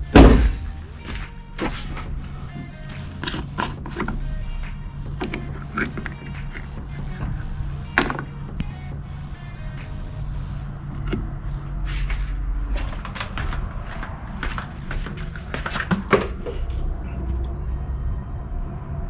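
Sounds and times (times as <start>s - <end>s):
hand tools and parts clattering: 0.0s - 11.2s
steady low hum: 0.0s - 19.0s.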